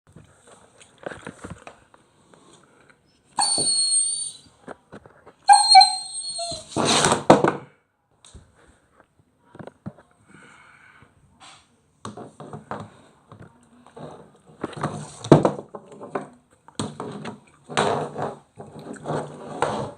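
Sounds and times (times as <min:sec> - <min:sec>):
puppy whining: 0:03.3 - 0:04.5, 0:05.5 - 0:06.9.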